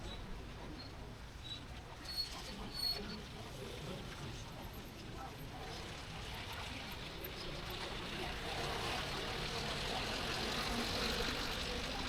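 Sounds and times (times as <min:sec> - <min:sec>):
tyres on road: 0:07.5 - 0:12.0.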